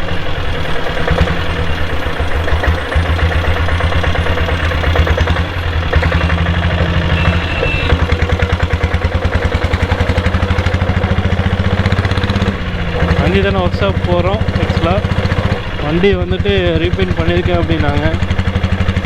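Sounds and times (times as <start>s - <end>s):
motorcycle diesel engine running: 0.0s - 19.0s.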